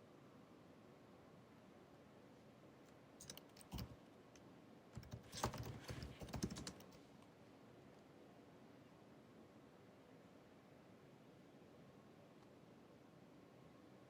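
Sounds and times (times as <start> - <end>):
laptop keyboard typing: 3.2 - 4.0, 5.0 - 7.0.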